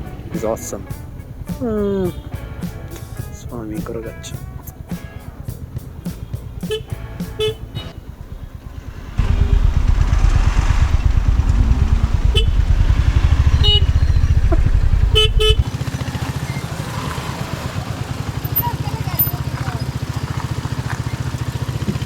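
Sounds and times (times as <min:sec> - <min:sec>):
motorcycle engine pulling hard: 0:05.6 - 0:22.0
vehicle horn beeps: 0:06.7 - 0:08.0, 0:09.2 - 0:15.7.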